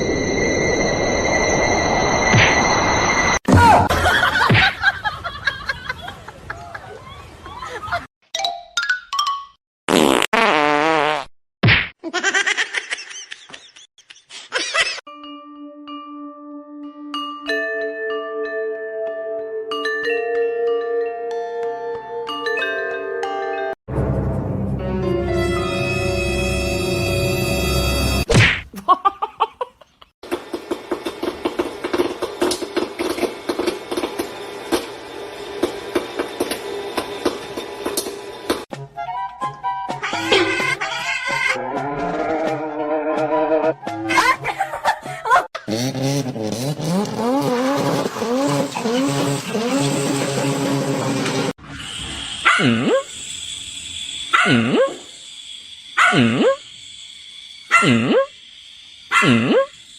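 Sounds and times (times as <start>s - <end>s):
dog barking: 52.4s - 53.0s, 54.3s - 55.0s, 56.0s - 56.6s, 57.7s - 58.0s, 59.1s - 59.4s.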